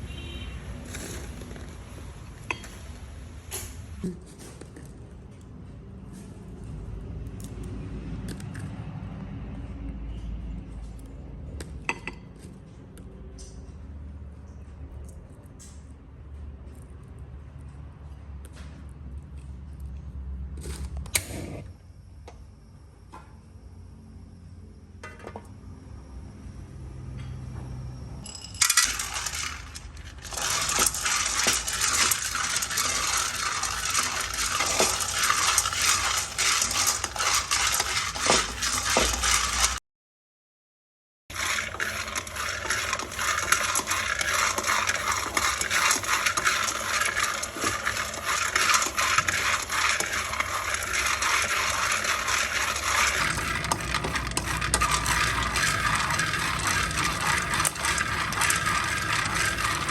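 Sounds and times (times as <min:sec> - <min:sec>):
coffee beans rattling in a pan: 0:00.0 - 0:03.8, 0:28.3 - 0:39.8, 0:41.3 - 0:59.9.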